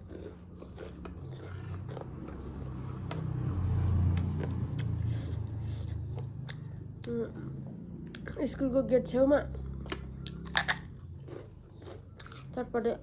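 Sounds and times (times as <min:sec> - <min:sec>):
crisp bites and chewing: 0:09.8 - 0:12.5.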